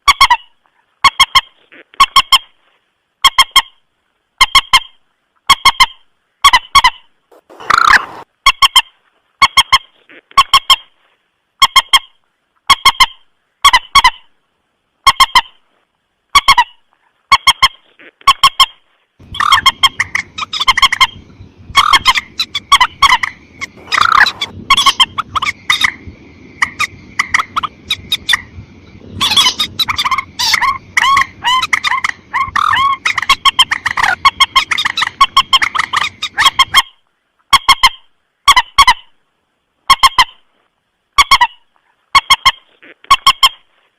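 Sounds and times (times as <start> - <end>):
low hiss: 2.5 - 6.4, 7.0 - 10.3, 10.9 - 18.2, 18.8 - 38.5
rail bird honking calls: 6.6 - 8.7, 19.2 - 36.8.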